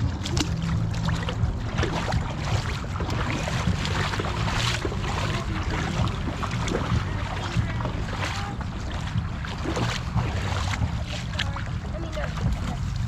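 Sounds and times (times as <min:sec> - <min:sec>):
seawater splashing around kayak: 0:00.0 - 0:13.0
wind rumble on microphone: 0:00.0 - 0:13.0.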